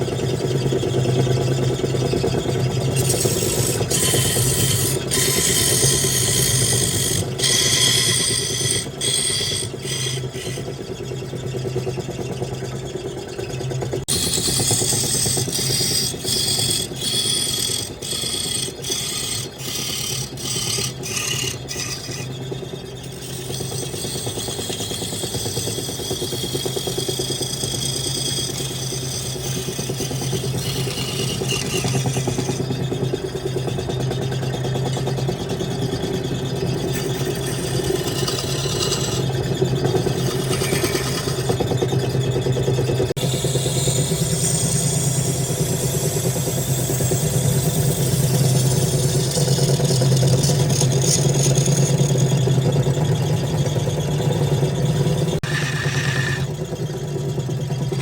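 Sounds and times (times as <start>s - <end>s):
lathe motor hum: 0.0s - 58.0s
tool cutting spinning wood: 0.0s - 58.0s.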